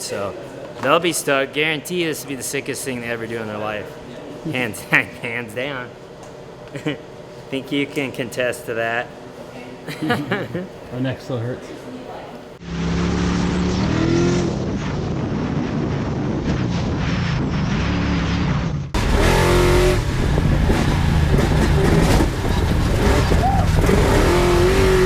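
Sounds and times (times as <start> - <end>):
truck engine revving: 12.6 - 25.0.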